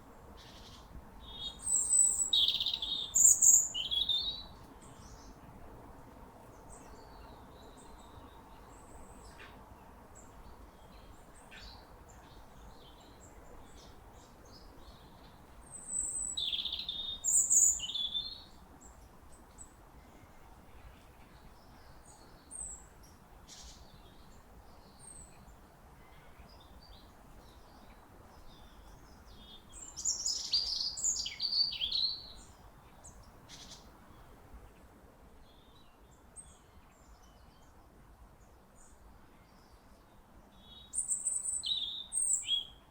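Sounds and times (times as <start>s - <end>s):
birds chirping and singing: 29.4s - 32.3s.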